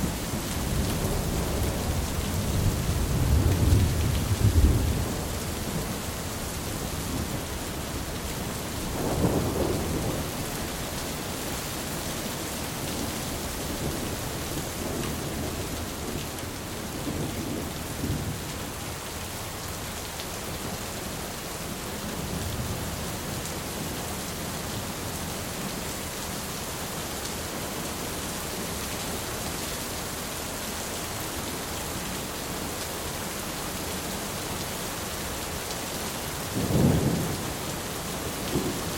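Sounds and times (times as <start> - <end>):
heavy rain: 0.0 - 38.9
rolling thunder: 0.7 - 5.9, 36.6 - 37.6.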